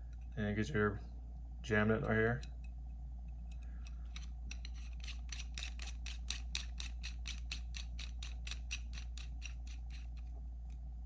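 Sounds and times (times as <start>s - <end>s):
low steady hum: 0.0s - 11.0s
nut spinning metallic clicks: 3.5s - 10.3s.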